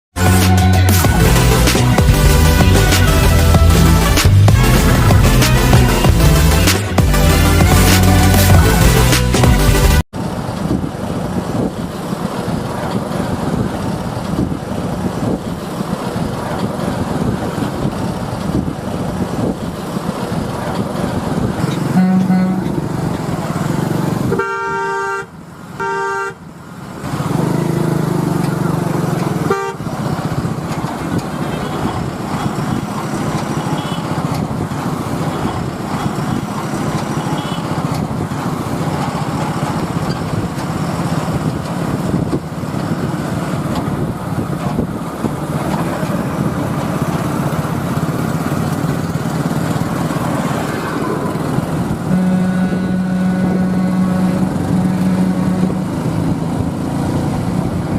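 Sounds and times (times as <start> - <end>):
lorry engine running: 0.1 - 57.9
road noise: 0.1 - 57.9
horn blasts: 0.2 - 10.0, 21.8 - 23.2, 24.2 - 26.5, 29.3 - 30.0, 51.9 - 56.2.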